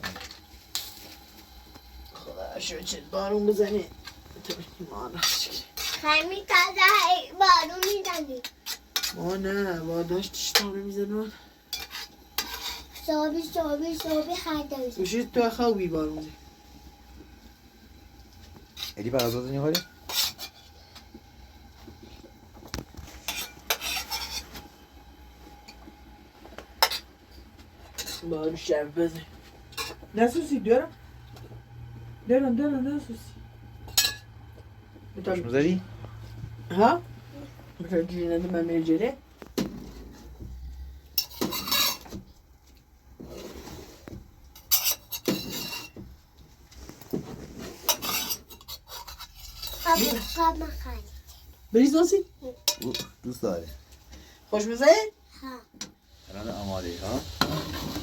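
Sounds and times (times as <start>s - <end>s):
metal spoon scraping a pot: 3.4s - 6.2s, 7.8s - 9.5s, 11.7s - 13.1s, 18.7s - 20.8s, 23.0s - 24.6s, 41.2s - 42.2s, 43.2s - 46.0s, 47.1s - 50.6s, 57.4s - 58.0s
metal utensils clinking on dishes: 33.9s - 34.3s, 52.6s - 53.4s.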